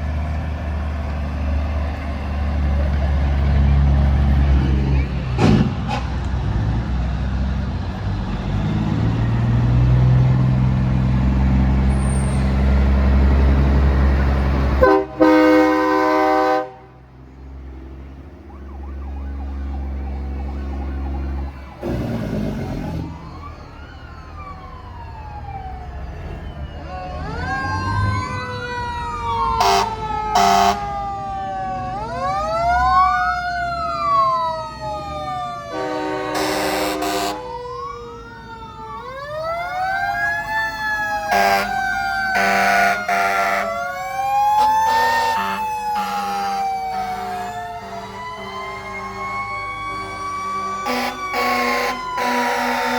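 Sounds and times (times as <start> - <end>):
diesel truck engines rumbling: 0.0 - 52.9
sirens wailing: 0.0 - 52.9
air horn blasts: 14.8 - 16.9, 29.6 - 30.9, 35.7 - 37.5, 41.3 - 41.7, 42.4 - 43.7, 44.9 - 52.9.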